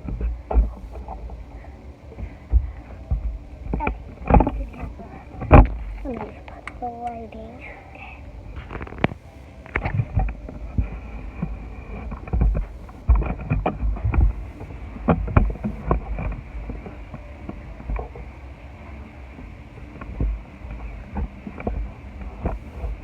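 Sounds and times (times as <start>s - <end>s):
low handling thumps: 8.3s - 18.6s.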